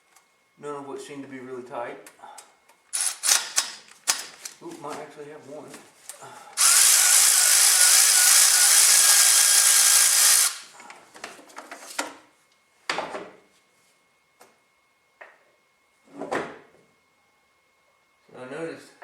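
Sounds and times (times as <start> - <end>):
power tool running on bolt: 2.9 - 4.2, 6.6 - 10.8.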